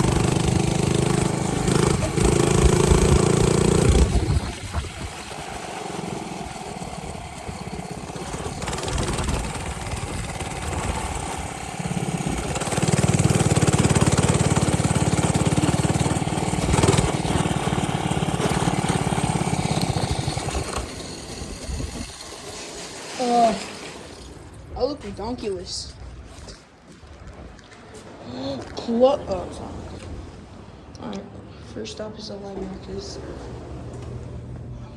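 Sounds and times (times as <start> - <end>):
small engine puttering: 0.0 - 24.7.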